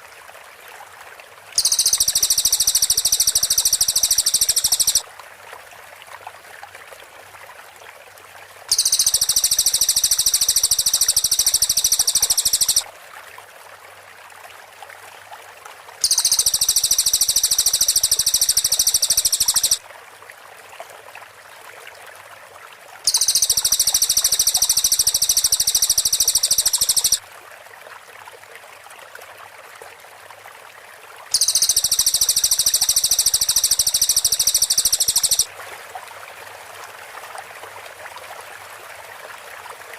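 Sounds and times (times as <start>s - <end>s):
faint steady hiss: 1.2s - 5.0s, 7.4s - 13.3s, 14.1s - 19.8s, 23.1s - 28.0s, 31.2s - 39.9s
rapid high bird notes: 1.6s - 5.0s, 8.7s - 12.8s, 16.0s - 19.8s, 23.1s - 27.2s, 31.4s - 35.5s.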